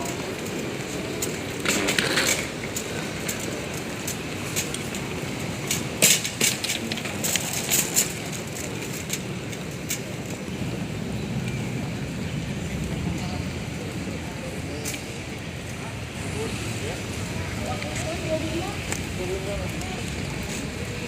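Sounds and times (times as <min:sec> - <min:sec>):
sharp clicks and rattles: 0:00.0 - 0:10.5
airport terminal background noise: 0:00.0 - 0:21.0.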